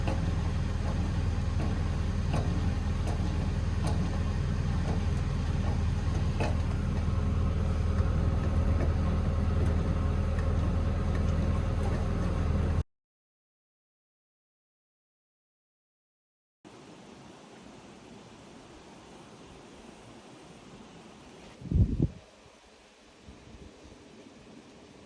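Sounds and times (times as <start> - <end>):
engine idling: 0.0 - 12.8.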